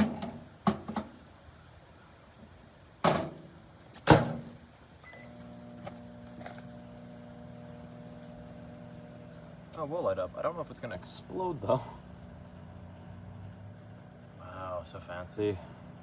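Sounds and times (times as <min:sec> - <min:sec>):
short beep: 0:05.0 - 0:05.4
microwave oven humming: 0:05.0 - 0:16.0.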